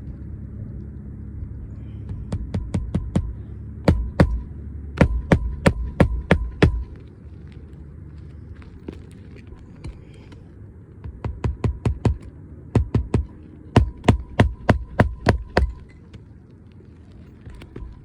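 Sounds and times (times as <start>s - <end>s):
hammer driving nails: 2.2s - 7.0s, 11.1s - 15.9s
faint metallic ring: 13.3s - 16.2s.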